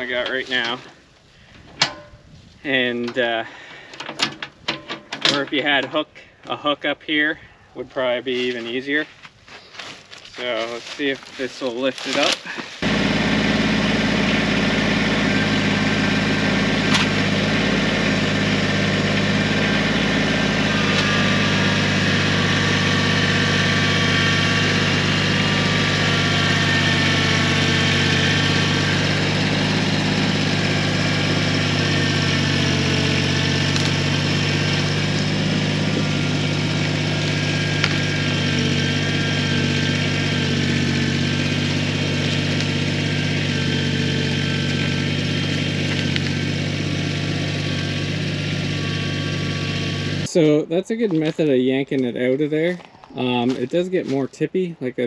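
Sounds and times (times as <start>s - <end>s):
tractor diesel engine running: 0.0s - 0.9s, 10.4s - 50.6s.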